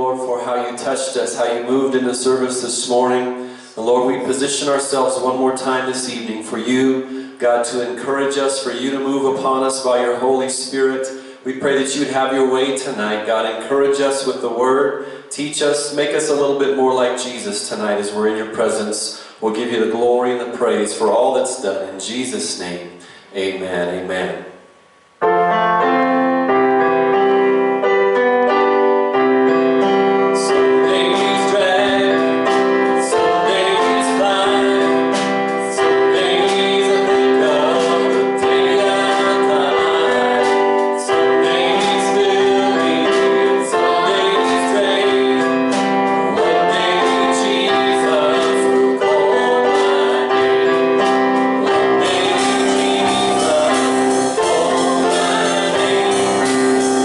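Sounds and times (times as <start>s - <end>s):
keyboard chords: 0.0s - 18.6s, 23.3s - 57.0s
people singing: 30.4s - 57.0s
percussion beat: 34.6s - 42.3s, 51.0s - 57.0s.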